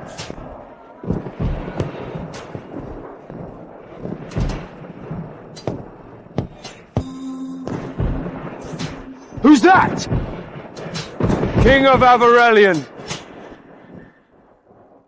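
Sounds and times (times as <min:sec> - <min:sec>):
heavy booming impacts: 0:01.1 - 0:12.3.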